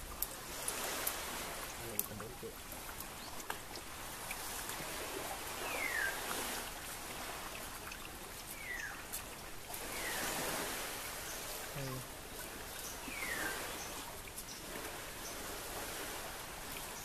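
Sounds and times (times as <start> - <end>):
faint light clicks: 2.0 - 2.2
bird whistling: 5.7 - 6.2, 13.1 - 13.6.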